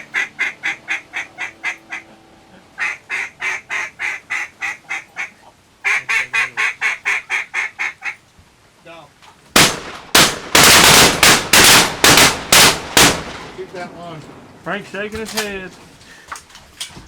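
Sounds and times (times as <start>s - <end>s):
duck call quacks: 0.0s - 8.2s
shotgun blast: 9.6s - 13.6s.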